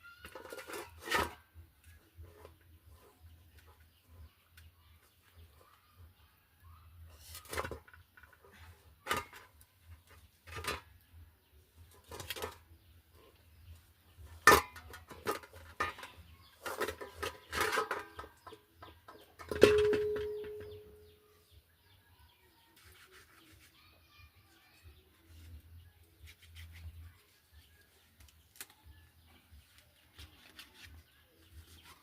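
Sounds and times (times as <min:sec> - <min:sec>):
pots and utensils clattering: 0:00.2 - 0:01.5, 0:07.3 - 0:09.6, 0:10.4 - 0:10.9, 0:14.3 - 0:21.1
struck metal pot ringing: 0:19.4 - 0:21.0.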